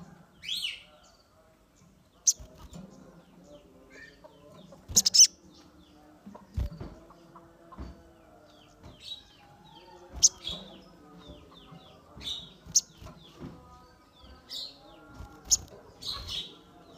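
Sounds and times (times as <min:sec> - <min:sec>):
bird chirps: 0:02.1 - 0:07.3, 0:08.6 - 0:16.9
soft bird warbling: 0:04.9 - 0:05.3
loud sharp high bird calls: 0:04.9 - 0:05.4.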